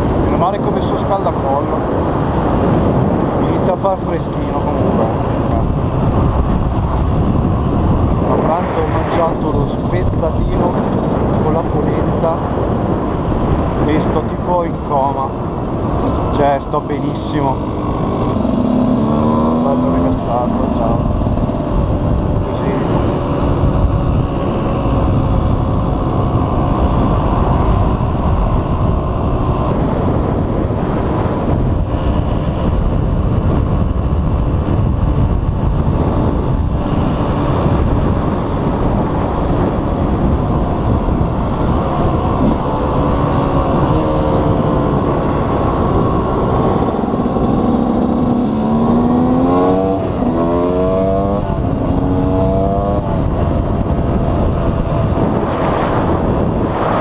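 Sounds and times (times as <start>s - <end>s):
wind on microphone: 0.0s - 57.0s
two-stroke motorcycle engine: 14.6s - 56.6s.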